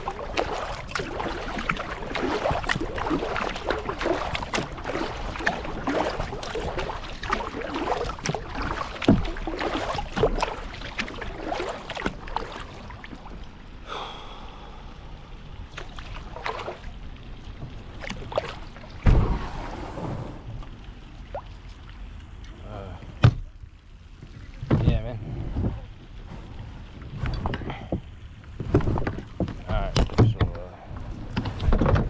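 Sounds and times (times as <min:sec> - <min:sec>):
paddle splashing in water: 0:00.0 - 0:14.2, 0:15.6 - 0:22.0
water sloshing against hull: 0:00.0 - 0:32.0.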